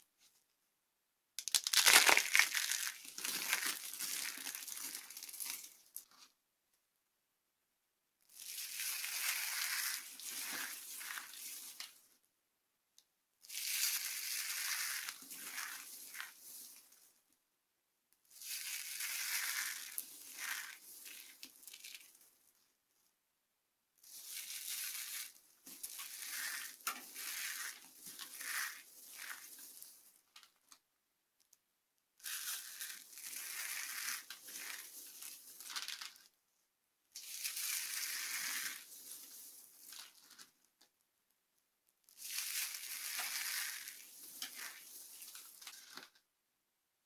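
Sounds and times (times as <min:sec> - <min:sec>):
dry soap crunching: 0:01.4 - 0:05.7.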